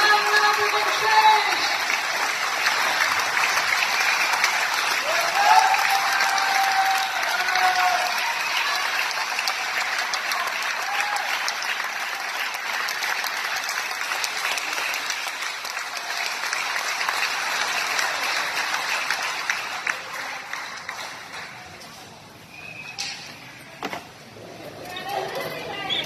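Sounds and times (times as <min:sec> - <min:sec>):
audience applauding: 0:00.0 - 0:21.8.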